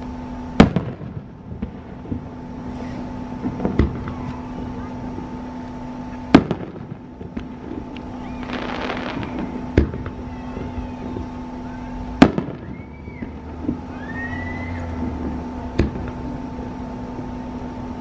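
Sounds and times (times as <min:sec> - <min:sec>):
fireworks whistling: 0:00.0 - 0:17.7
fireworks crackling: 0:00.0 - 0:18.0
steady hum: 0:00.0 - 0:18.0
fireworks bangs: 0:00.5 - 0:16.5
faint fireworks pops: 0:00.6 - 0:11.4, 0:12.2 - 0:13.9, 0:15.0 - 0:16.3.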